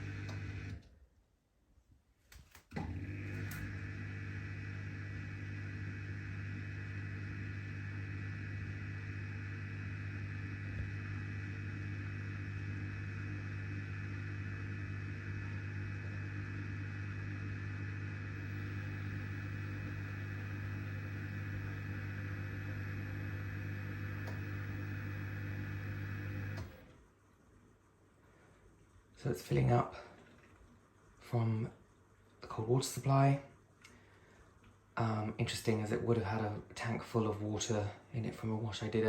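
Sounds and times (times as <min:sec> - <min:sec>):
dishwasher humming and hissing: 0:00.0 - 0:00.8, 0:02.7 - 0:27.0.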